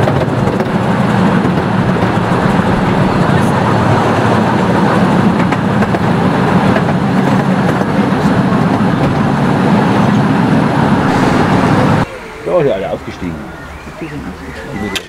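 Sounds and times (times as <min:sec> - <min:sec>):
carriages rattling: 0:00.0 - 0:11.0
wheels rumbling on track: 0:00.0 - 0:15.0.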